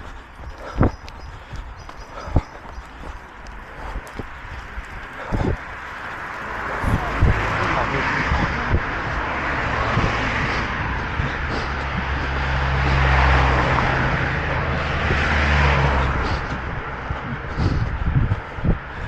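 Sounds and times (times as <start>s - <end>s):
rushing wash of noise: 3.7s - 18.8s.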